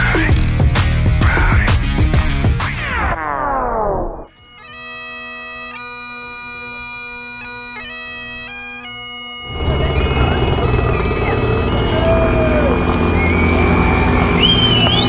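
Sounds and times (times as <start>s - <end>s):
bagpipes playing a tune: 4.4s - 15.0s
loud noisy rush: 9.5s - 15.0s.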